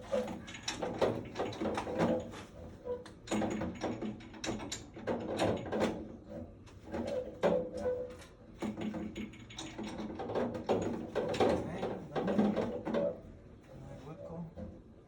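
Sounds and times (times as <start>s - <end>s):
mechanical clicking and knocking: 0.4s - 2.3s, 3.2s - 6.1s.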